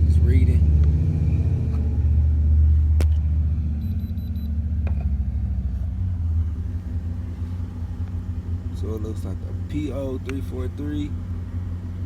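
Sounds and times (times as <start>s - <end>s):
car engine idling: 0.0s - 12.0s
faint high beeps: 3.8s - 4.6s.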